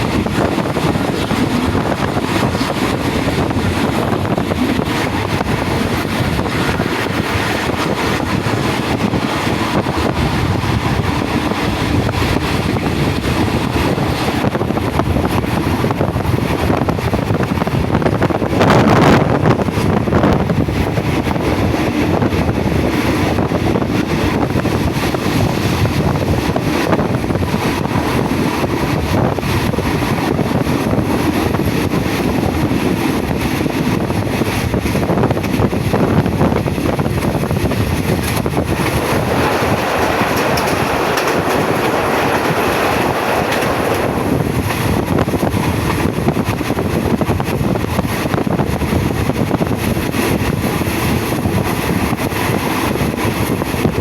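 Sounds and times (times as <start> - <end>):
rail clicks and rattle: 0.0 - 54.0
train wheels rumbling on rails: 0.0 - 54.0.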